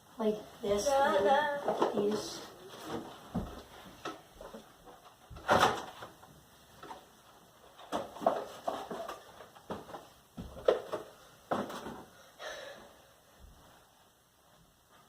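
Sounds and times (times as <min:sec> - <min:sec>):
objects knocking and bumping: 0:07.7 - 0:12.1.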